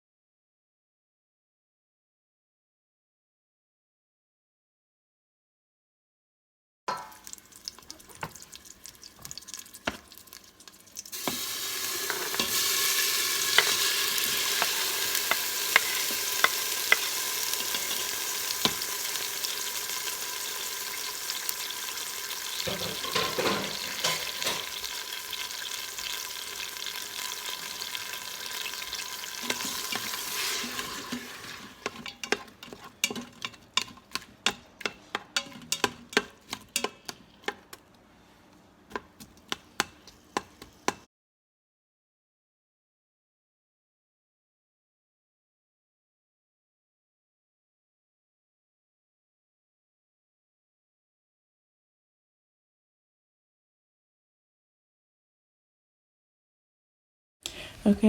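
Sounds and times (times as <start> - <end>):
food sizzling in hot oil: 6.9 - 37.1
spoon clicking against pot: 31.8 - 37.8.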